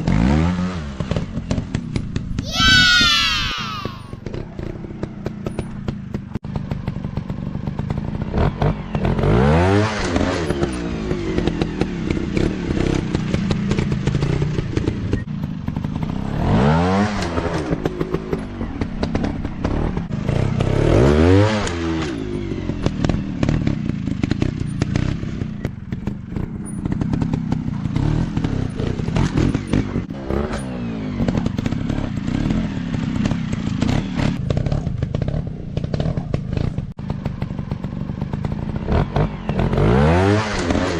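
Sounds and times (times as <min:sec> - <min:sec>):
dirt bike engine revving: 0:22.8 - 0:40.9.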